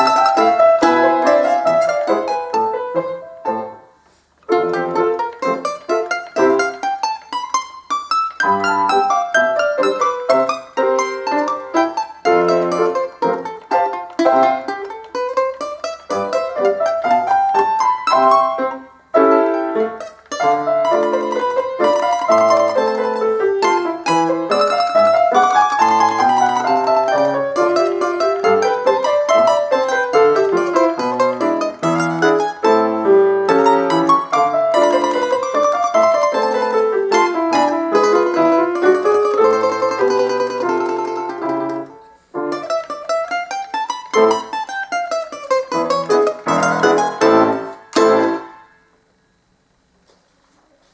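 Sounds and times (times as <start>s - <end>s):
plucked melody over bass: 0.0s - 3.0s, 20.3s - 41.9s, 42.5s - 48.6s
piano accompaniment: 0.0s - 49.0s.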